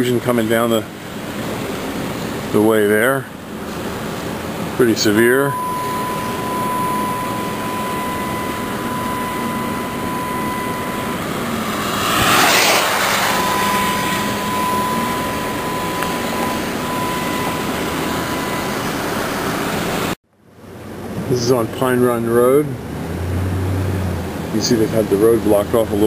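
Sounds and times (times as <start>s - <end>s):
car road and engine noise: 0.0s - 26.0s
thin steady tone: 4.8s - 20.1s
rushing swell: 5.0s - 20.2s.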